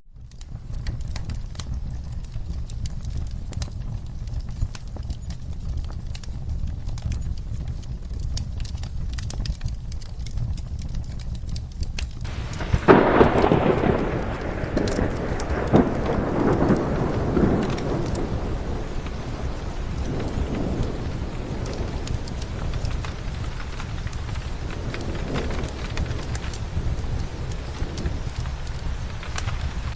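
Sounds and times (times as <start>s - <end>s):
steady rain: 0.0s - 29.9s
fireplace crackling: 0.1s - 29.9s
thunder clap rumbling: 12.2s - 29.9s.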